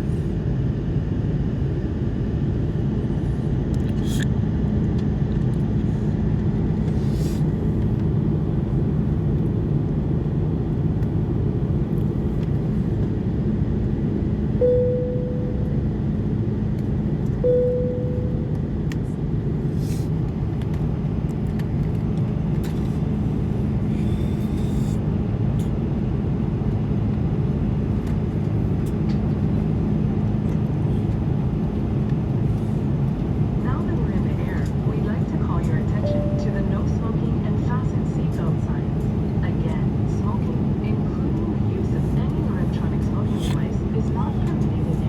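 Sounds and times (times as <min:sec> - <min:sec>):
airliner cabin rumble: 0:00.0 - 0:45.0
faint steady hum: 0:05.4 - 0:26.3, 0:27.6 - 0:45.0
cabin chime tone: 0:14.6 - 0:15.6, 0:17.5 - 0:18.5, 0:36.0 - 0:36.7.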